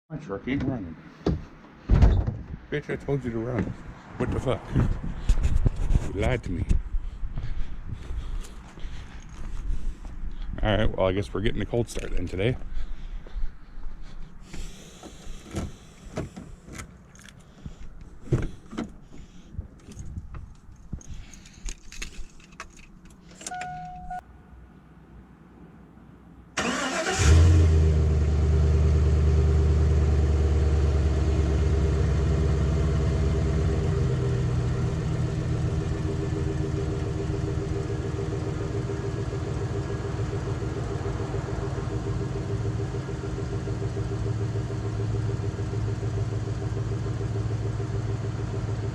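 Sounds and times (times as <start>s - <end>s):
short beep: 23.4s - 24.2s
truck engine starting and idling: 26.6s - 48.9s.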